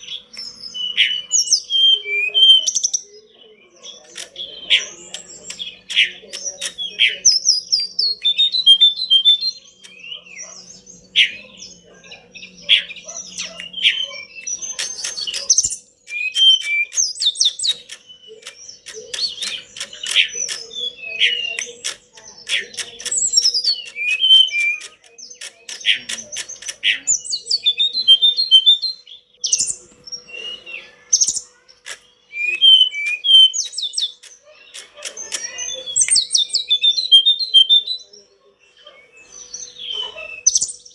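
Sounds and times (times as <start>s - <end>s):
songbird singing: 0.0s - 40.9s.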